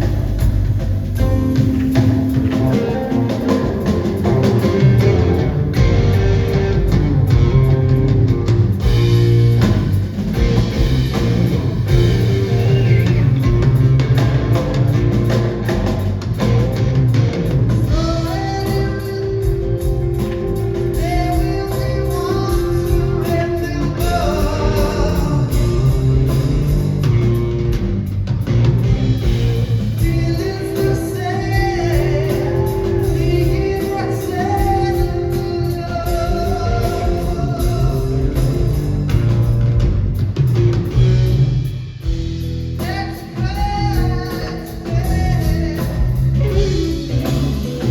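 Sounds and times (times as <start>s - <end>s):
rock band playing: 0.0s - 47.9s
person singing: 17.8s - 27.1s, 29.9s - 39.1s, 42.8s - 47.9s.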